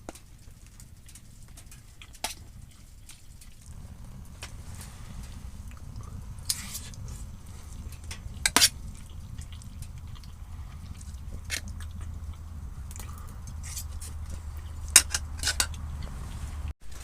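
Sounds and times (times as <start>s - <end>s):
steady low rumble: 0.4s - 16.8s.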